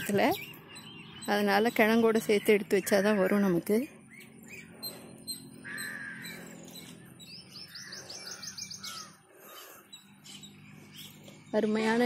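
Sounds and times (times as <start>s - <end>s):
birds calling and chirping: 0.0s - 12.0s
fast high bird trill: 4.1s - 11.2s.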